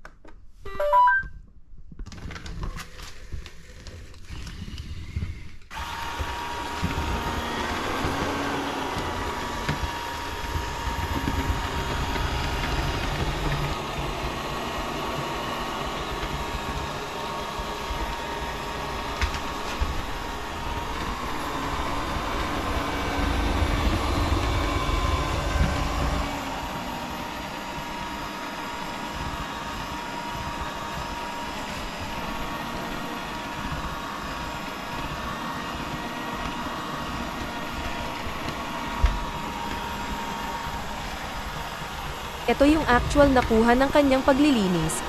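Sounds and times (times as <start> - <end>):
robot vacuum cleaner running: 3.1 - 45.0.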